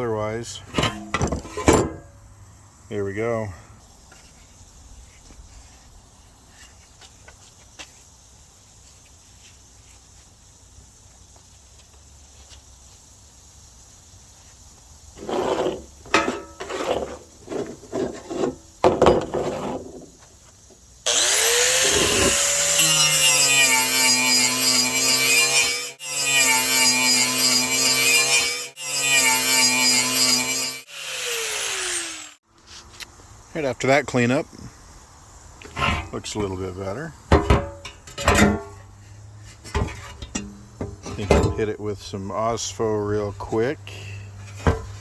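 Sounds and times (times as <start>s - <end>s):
short scraping bursts: 15.2s - 15.9s
angle grinder grinding metal: 21.1s - 32.4s.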